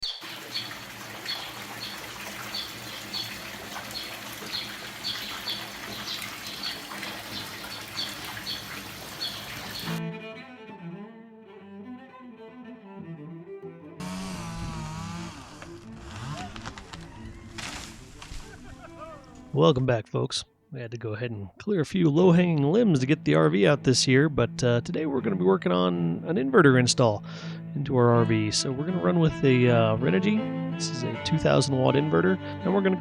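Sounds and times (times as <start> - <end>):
bird chirping: 0.0 - 10.0
rushing water: 0.0 - 10.0
music with low bowed strings: 9.8 - 19.6, 22.2 - 33.0.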